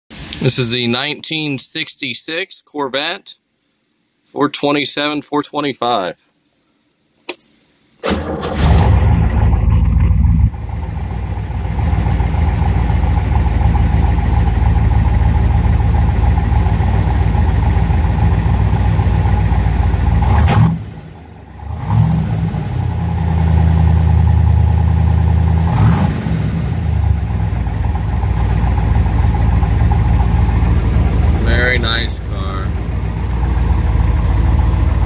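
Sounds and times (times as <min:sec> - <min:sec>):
car engine revving: 0:08.1 - 0:35.0
car engine lumpy idle: 0:08.5 - 0:35.0.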